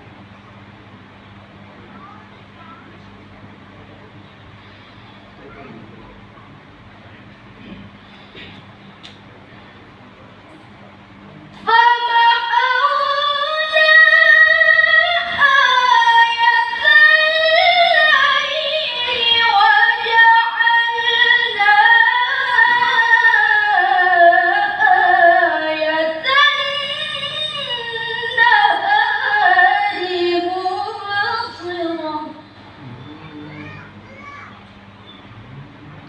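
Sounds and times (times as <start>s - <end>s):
girl chanting melodically: 11.6s - 32.4s, 33.3s - 34.5s.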